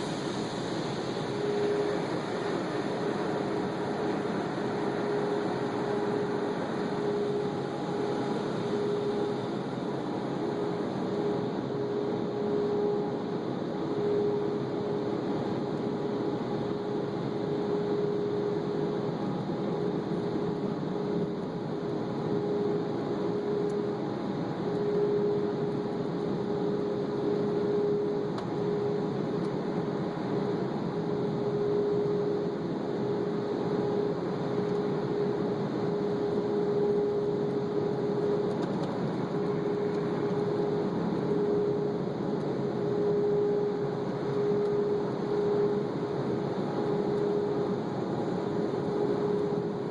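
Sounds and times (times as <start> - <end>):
humming tone: 0.0 - 15.1, 31.1 - 49.9.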